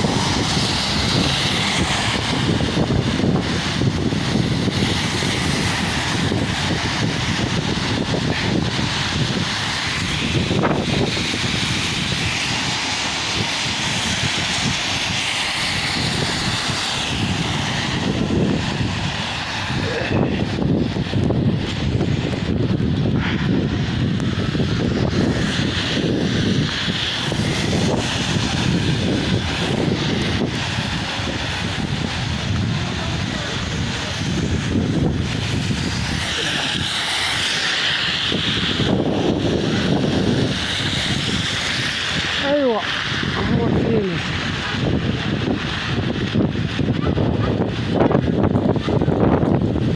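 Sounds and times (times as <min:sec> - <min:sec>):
low rumble: 0:00.0 - 0:25.6
heavy rain pouring: 0:00.0 - 0:49.9
wind buffeting microphone: 0:00.0 - 0:49.9.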